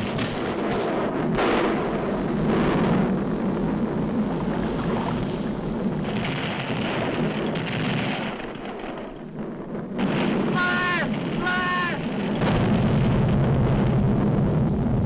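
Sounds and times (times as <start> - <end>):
heavy rumbling roar: 9.2 - 15.0.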